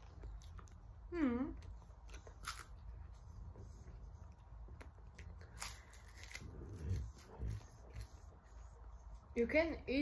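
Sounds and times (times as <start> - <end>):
crunchy snack chewing: 1.6 - 3.1, 4.7 - 8.2.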